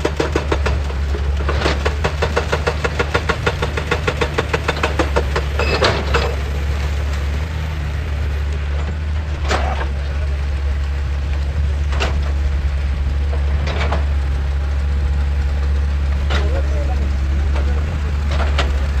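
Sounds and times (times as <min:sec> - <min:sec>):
hydraulic rock breaker hammering: 0:00.0 - 0:07.7, 0:13.2 - 0:19.0
excavator diesel engine running: 0:00.0 - 0:19.0.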